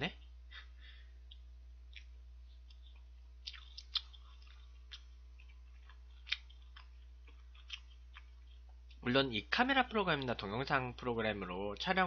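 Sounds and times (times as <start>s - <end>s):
steady low hum: 0.0s - 12.0s
mouth clicks while chewing: 1.2s - 8.8s.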